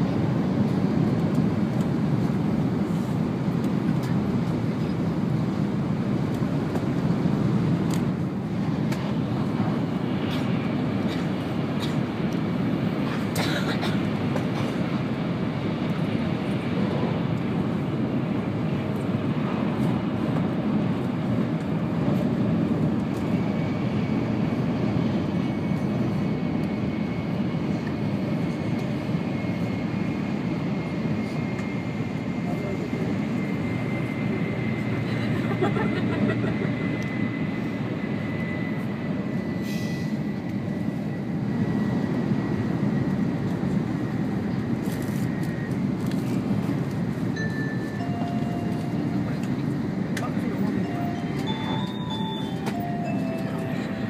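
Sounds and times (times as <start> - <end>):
train cabin running rumble: 46.0 - 54.0.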